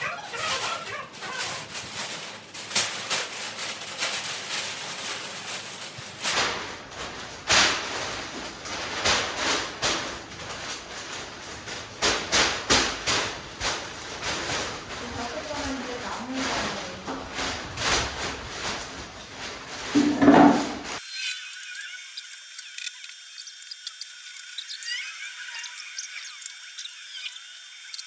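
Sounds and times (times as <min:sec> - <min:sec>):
cardboard rustling: 0:00.0 - 0:21.0.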